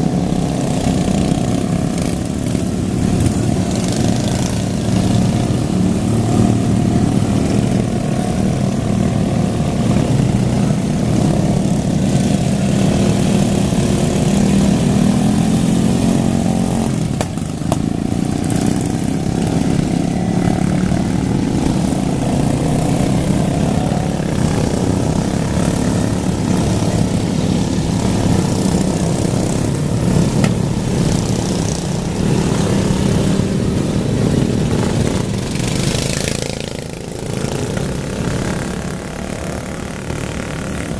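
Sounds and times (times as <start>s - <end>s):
racing lawn mower engines: 0.0s - 40.9s.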